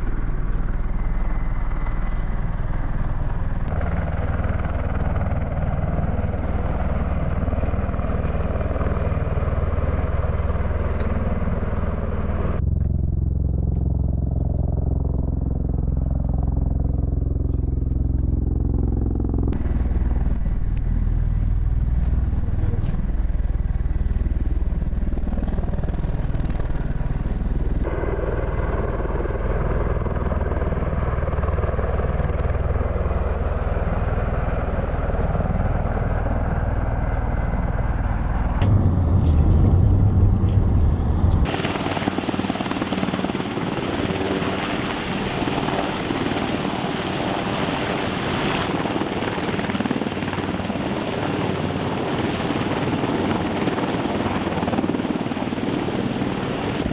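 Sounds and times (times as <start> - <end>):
helicopter turbine and rotor roar: 0.0 - 56.9.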